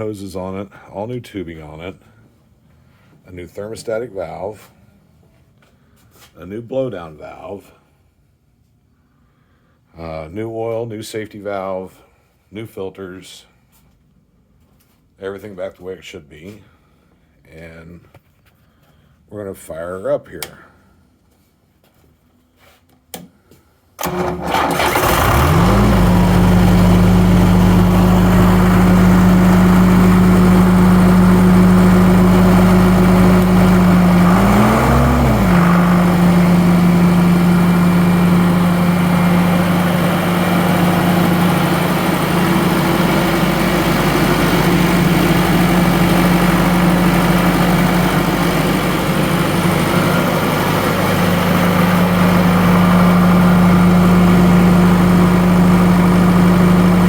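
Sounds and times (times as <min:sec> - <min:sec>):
air compressor engine running: 0:24.0 - 0:57.0.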